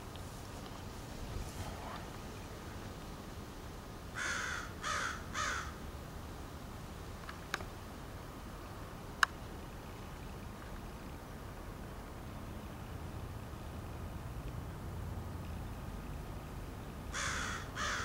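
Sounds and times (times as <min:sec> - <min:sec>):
crow cawing: 0:04.2 - 0:05.8, 0:17.1 - 0:18.0.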